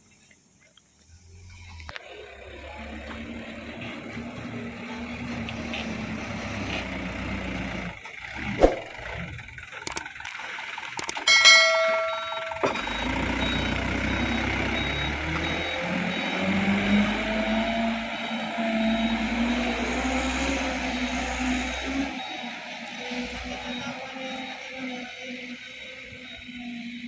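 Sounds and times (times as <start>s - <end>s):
dump truck engine running: 1.1s - 27.0s
clicks: 9.8s - 10.4s, 11.0s - 12.9s
rapid high beeping: 11.0s - 15.8s.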